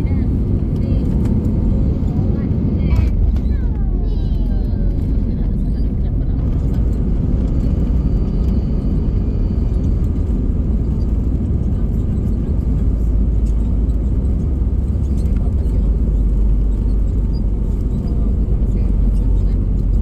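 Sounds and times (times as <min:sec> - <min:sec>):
airplane cabin rumble: 0:00.0 - 0:20.0.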